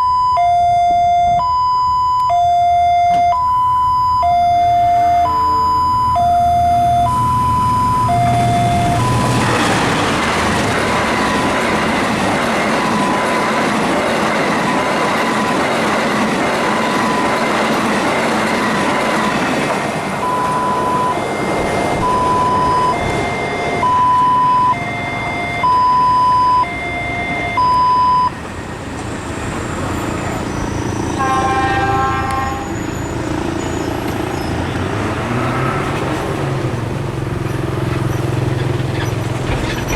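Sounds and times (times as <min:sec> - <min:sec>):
level crossing alarm chime: 0:00.0 - 0:15.7, 0:16.6 - 0:18.7, 0:20.1 - 0:29.0
train rumbling clatter: 0:07.1 - 0:39.9
train horn blast: 0:20.3 - 0:28.0, 0:31.1 - 0:33.1.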